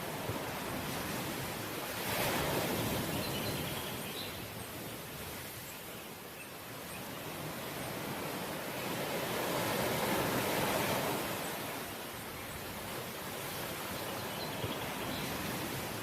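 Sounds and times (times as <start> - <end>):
ocean waves breaking on shore: 0.0 - 16.0.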